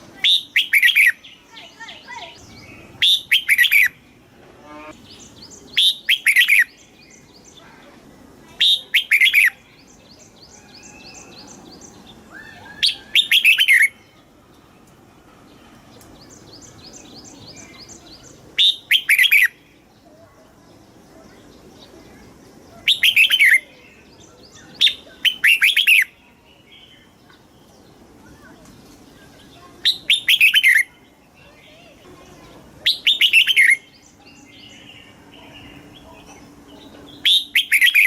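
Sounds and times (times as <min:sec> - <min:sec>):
bird whistled phrases: 0:00.2 - 0:04.0, 0:05.7 - 0:06.8, 0:08.5 - 0:09.9, 0:12.3 - 0:14.1, 0:16.9 - 0:19.6, 0:22.7 - 0:27.1, 0:29.8 - 0:31.0, 0:32.8 - 0:34.8, 0:37.1 - 0:38.0.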